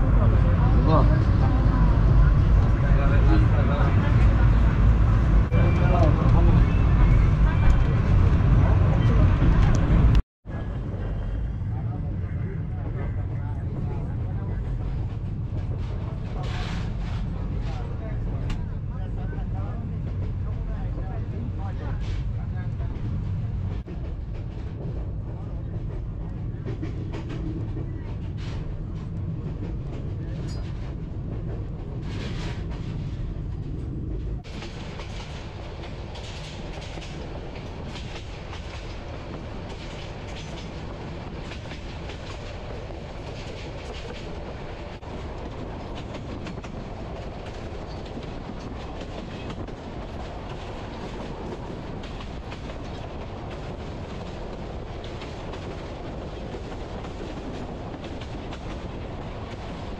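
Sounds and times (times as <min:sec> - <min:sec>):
train wheels rushing on rails: 0:13.7 - 0:59.9.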